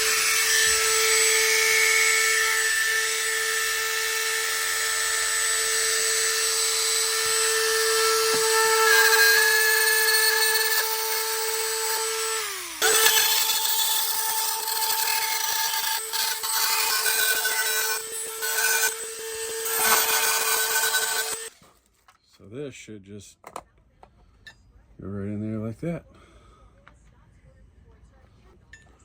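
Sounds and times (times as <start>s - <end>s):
rotary tool high whine: 0.0s - 21.5s.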